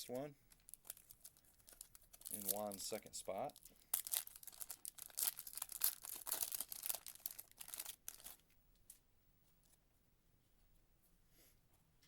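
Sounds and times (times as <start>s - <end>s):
wrapper tearing and crinkling: 0.5s - 8.4s.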